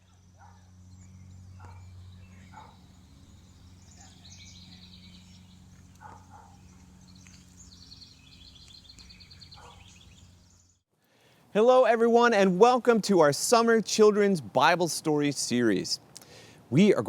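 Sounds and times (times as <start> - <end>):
birds singing: 0.0 - 10.8
low steady hum: 0.0 - 13.6.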